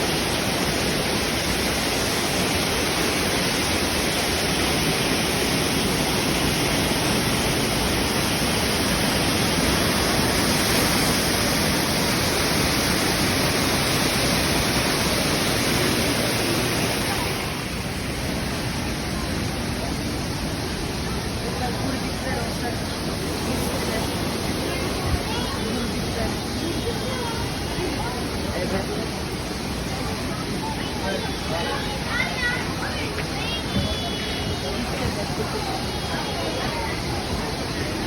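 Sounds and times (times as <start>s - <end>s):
rushing stream water: 0.0s - 38.0s.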